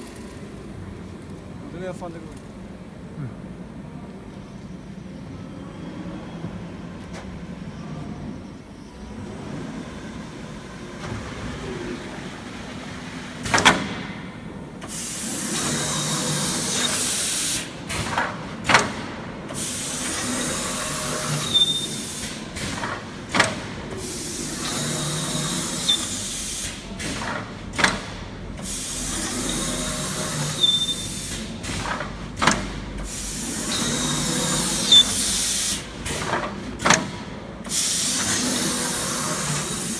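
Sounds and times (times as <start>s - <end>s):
sharp machine clunks: 13.0s - 38.7s
machine scraping hiss: 14.8s - 36.4s, 37.0s - 39.9s.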